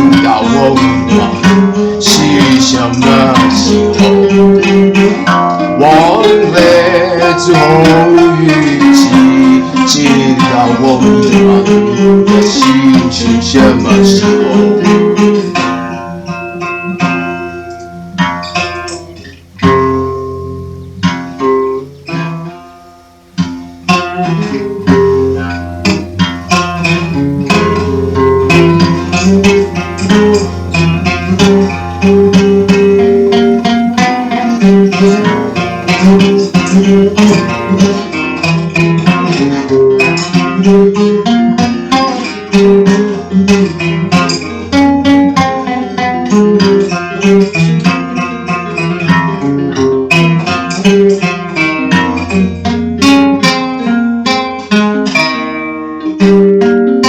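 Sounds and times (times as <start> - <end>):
acoustic guitar plucked and strummed: 0.0 - 57.0
low sustained drone: 9.9 - 46.8.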